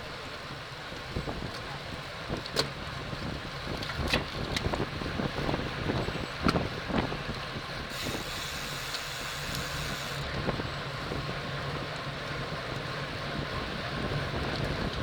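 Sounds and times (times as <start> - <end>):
road and tyre noise hum: 0.0 - 15.0
wind rushing over microphone: 13.1 - 15.0.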